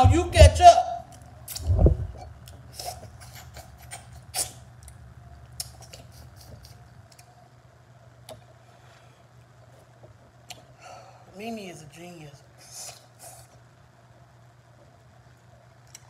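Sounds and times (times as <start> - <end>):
low steady hum: 0.0 - 16.0
wet chewing smacks: 1.2 - 7.3.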